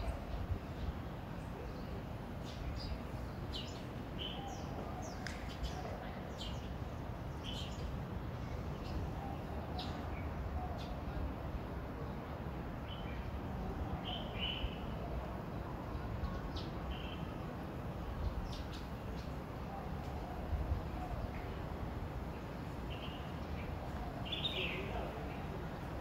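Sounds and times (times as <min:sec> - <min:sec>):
birds chirping: 0:22.3 - 0:26.0.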